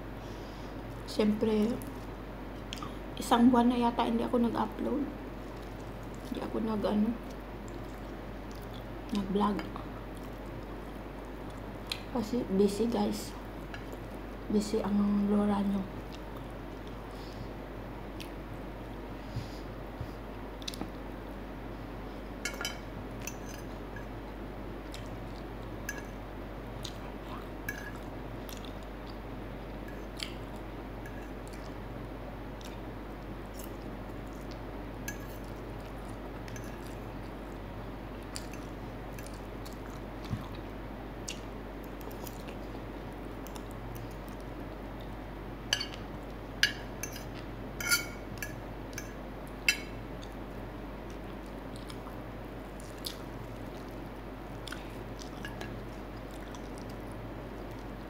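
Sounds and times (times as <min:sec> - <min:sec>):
person chewing food: 0:07.3 - 0:08.9, 0:18.1 - 0:18.5, 0:20.0 - 0:21.0, 0:23.1 - 0:31.8, 0:32.5 - 0:58.0
metal fork clinking on plate: 0:22.4 - 0:24.1, 0:46.6 - 0:49.1.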